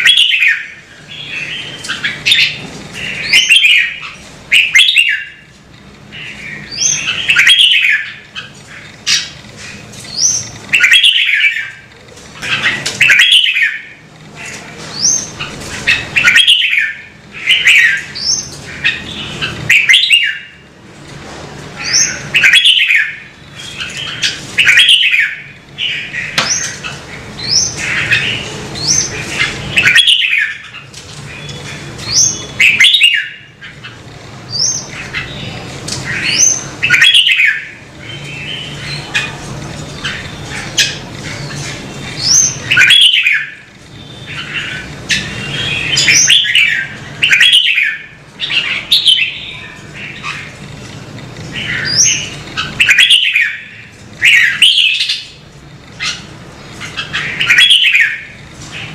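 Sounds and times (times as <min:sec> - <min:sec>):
bird singing whistled phrases: 0:03.3 - 0:05.4.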